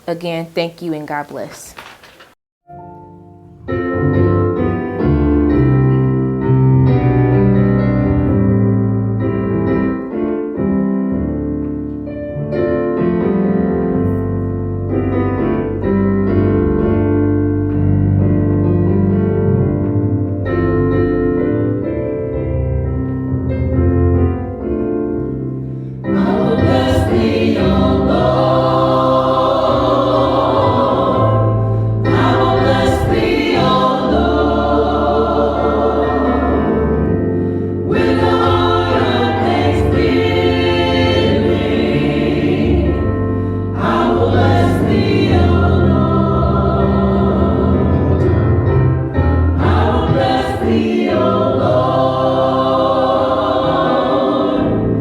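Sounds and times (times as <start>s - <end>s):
keyboard and bass: 2.7s - 55.0s
gospel choir singing: 25.9s - 55.0s.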